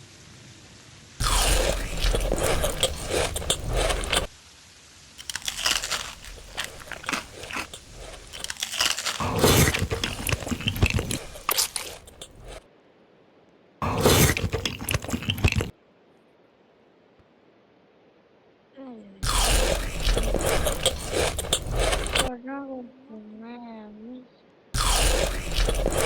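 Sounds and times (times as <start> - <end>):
person chewing crunchy food: 1.2 - 4.3, 5.2 - 12.6, 13.8 - 15.7, 19.2 - 22.3, 24.8 - 26.0.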